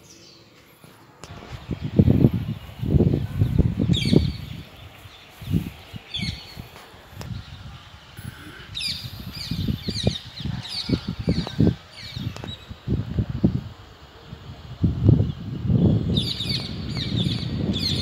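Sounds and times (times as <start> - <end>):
birds chirping: 0.0 - 12.8, 15.0 - 18.0.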